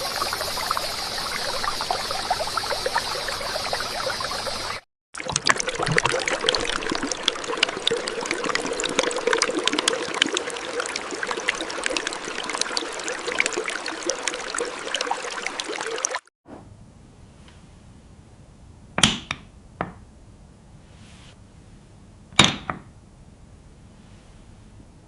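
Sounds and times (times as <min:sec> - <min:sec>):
water pouring and splashing: 0:00.0 - 0:16.3.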